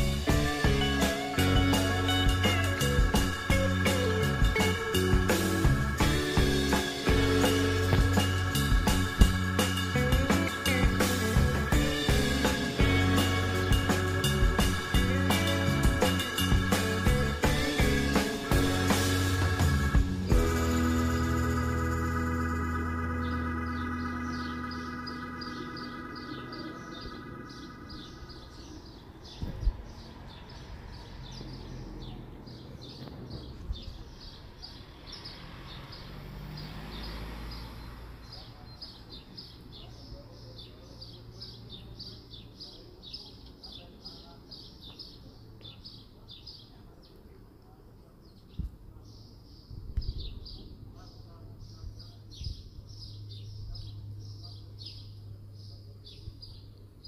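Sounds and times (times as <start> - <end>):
organ music: 0.0 - 29.2
small bird chirping: 20.4 - 47.4, 48.3 - 57.0
low thump: 29.4 - 29.8.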